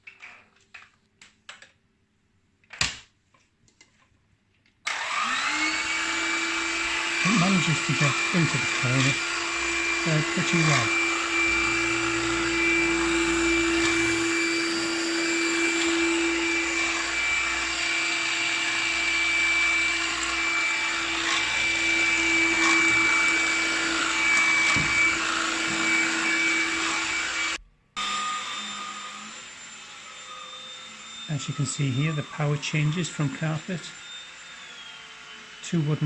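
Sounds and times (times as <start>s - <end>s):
vacuum cleaner running: 4.9s - 36.0s.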